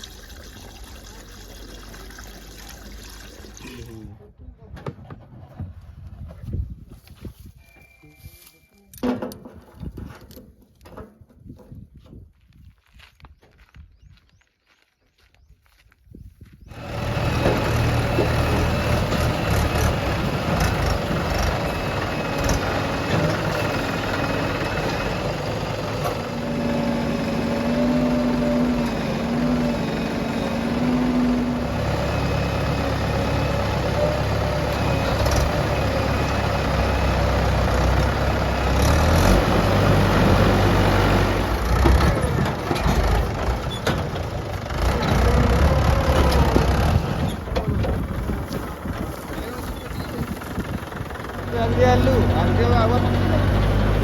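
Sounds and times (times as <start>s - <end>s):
diesel engines running: 16.7s - 54.0s.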